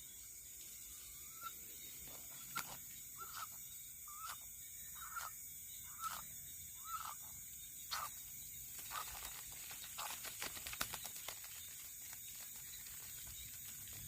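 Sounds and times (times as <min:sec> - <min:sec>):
crickets trilling: 0:00.0 - 0:14.0
animal calling: 0:01.0 - 0:07.3.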